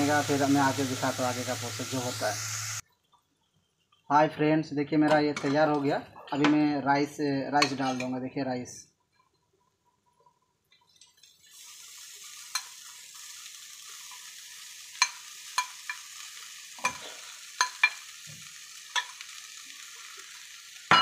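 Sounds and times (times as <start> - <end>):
vegetables sizzling in a pan: 0.0 - 2.8, 11.0 - 21.0
utensils clinking against pan: 7.6 - 8.2, 15.0 - 16.1, 16.8 - 18.1, 18.9 - 19.2.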